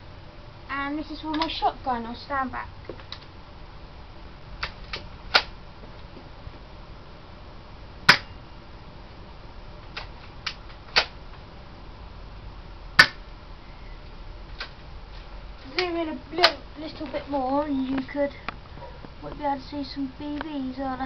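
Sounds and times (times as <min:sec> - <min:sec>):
airsoft shotgun shots: 0:08.1 - 0:08.4, 0:13.0 - 0:13.2.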